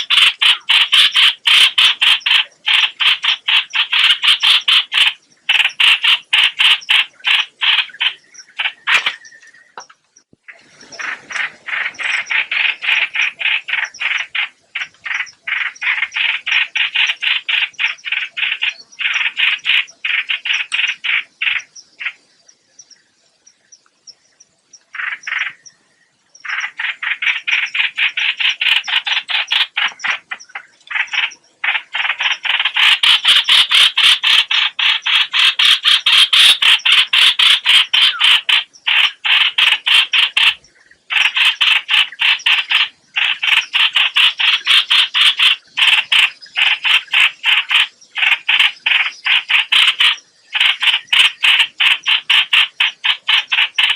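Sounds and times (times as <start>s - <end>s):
bird rattling call: 0.0s - 9.8s, 10.5s - 22.2s, 24.9s - 25.7s, 26.4s - 53.9s.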